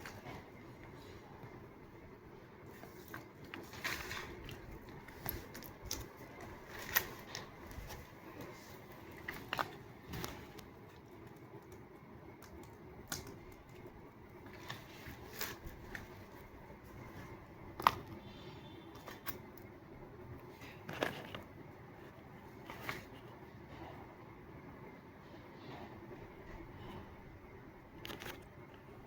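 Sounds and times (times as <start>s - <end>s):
paper handling clicks and taps: 28.0s - 28.9s.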